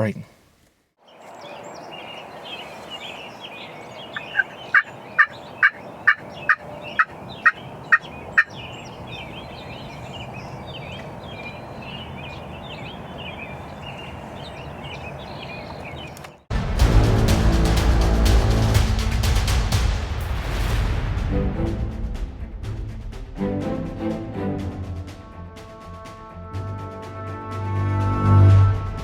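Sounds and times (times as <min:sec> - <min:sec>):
songbirds chirping: 0:00.0 - 0:16.5
wild turkey yelping: 0:03.4 - 0:16.1.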